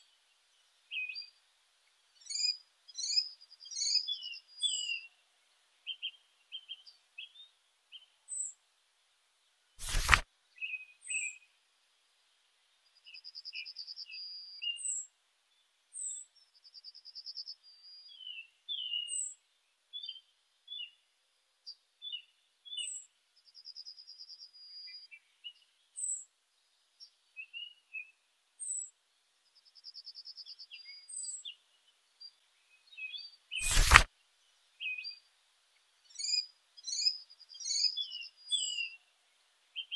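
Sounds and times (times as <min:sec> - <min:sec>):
sharp click: 0:09.8 - 0:10.2, 0:33.6 - 0:34.1.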